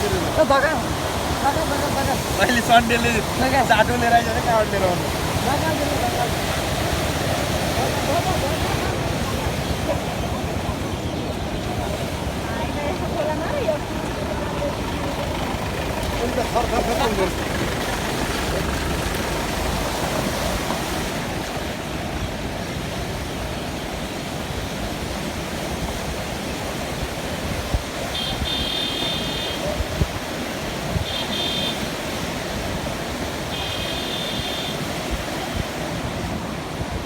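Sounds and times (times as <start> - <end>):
river rushing: 0.0 - 37.0.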